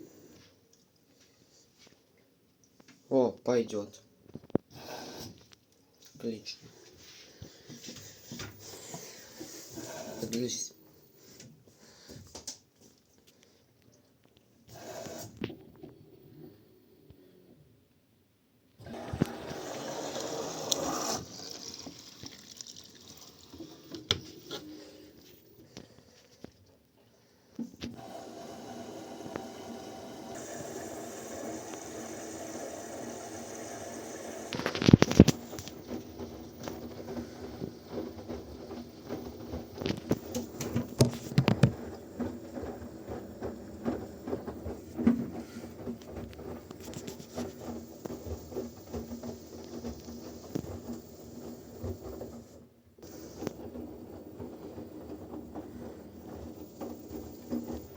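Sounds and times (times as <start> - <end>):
washing machine motor hum: 6.9 - 12.4, 14.7 - 17.7, 18.8 - 26.2, 27.6 - 57.9
washing machine knocking: 28.0 - 57.9
wet laundry clicks and patter: 34.5 - 57.9.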